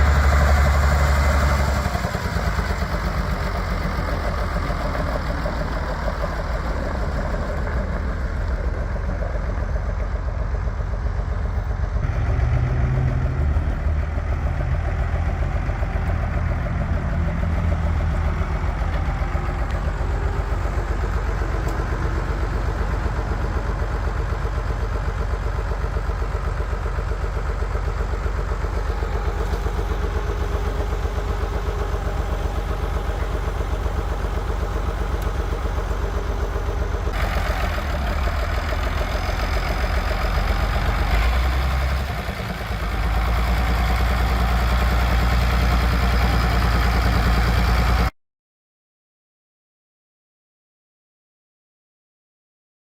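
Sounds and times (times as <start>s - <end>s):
diesel tractor idling: 0.0s - 48.1s.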